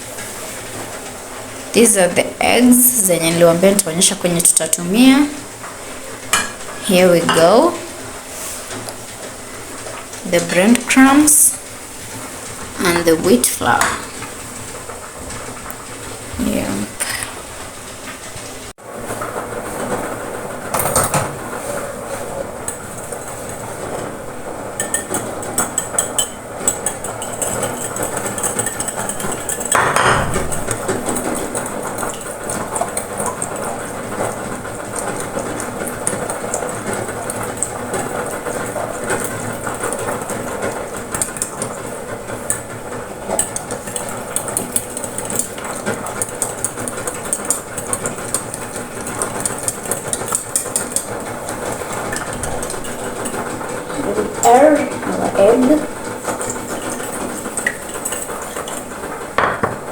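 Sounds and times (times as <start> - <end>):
dishes and utensils clinking: 6.3 - 7.8, 20.7 - 59.9.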